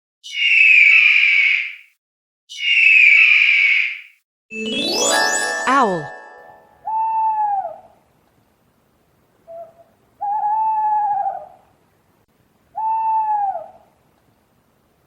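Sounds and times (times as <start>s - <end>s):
owl hooting: 0.2s - 1.9s, 2.5s - 4.1s, 6.9s - 8.0s, 9.5s - 11.6s, 12.8s - 13.9s.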